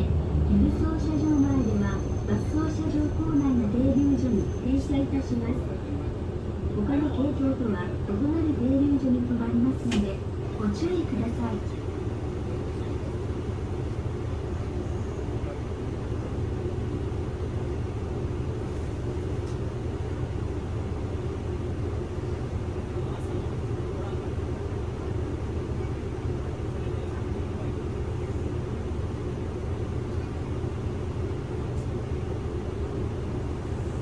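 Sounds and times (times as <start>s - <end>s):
road noise: 0.0s - 9.2s
bus engine hum: 0.0s - 34.0s.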